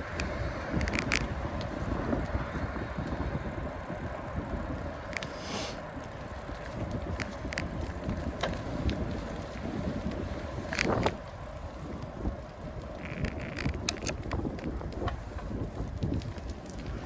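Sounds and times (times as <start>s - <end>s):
bicycle clicks and rattles: 0.0s - 5.3s, 6.0s - 17.0s
wind buffeting microphone: 0.0s - 5.4s, 6.0s - 17.0s
road rumble: 0.0s - 17.0s.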